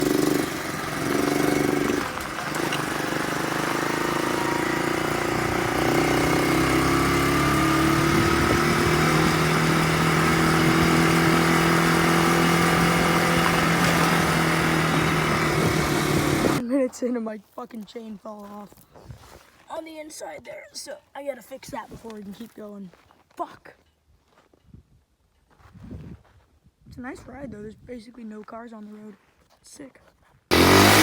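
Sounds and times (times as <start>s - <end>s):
dirt bike engine running: 0.0s - 16.6s, 30.5s - 31.0s.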